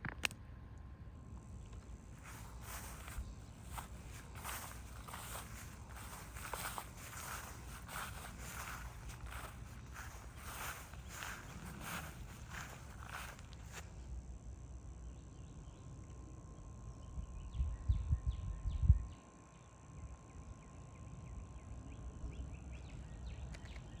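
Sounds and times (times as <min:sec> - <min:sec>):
small birds chirping: 0:01.4 - 0:13.8, 0:15.0 - 0:24.0
footsteps: 0:01.7 - 0:13.9.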